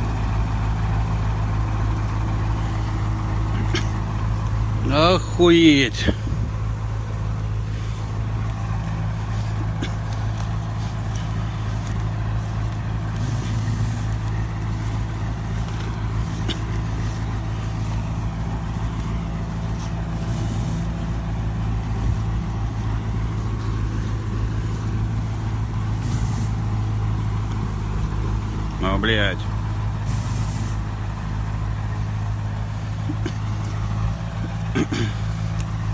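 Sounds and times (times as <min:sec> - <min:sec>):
diesel truck engine drone: 0:00.0 - 0:35.9
short hisses: 0:07.7 - 0:27.4, 0:30.0 - 0:31.0.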